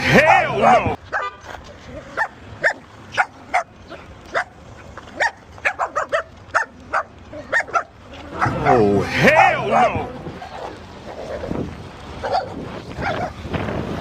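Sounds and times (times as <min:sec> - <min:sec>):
dog barking: 0:01.1 - 0:01.4, 0:02.1 - 0:03.7, 0:04.3 - 0:09.5, 0:12.2 - 0:13.4.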